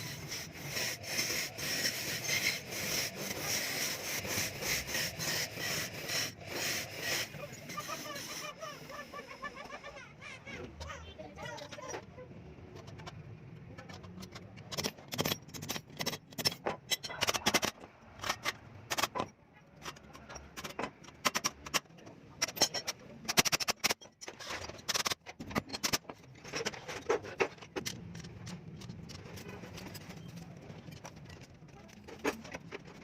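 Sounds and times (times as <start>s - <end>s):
metal parts clinking: 13.8s - 33.0s.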